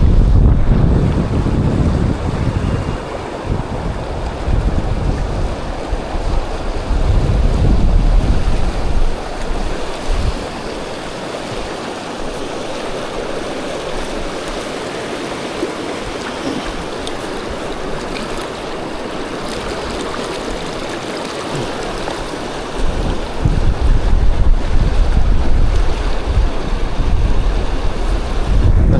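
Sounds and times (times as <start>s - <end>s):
wind buffeting microphone: 0.0s - 11.8s, 22.6s - 28.9s
river water rushing: 0.6s - 7.0s, 8.5s - 28.7s.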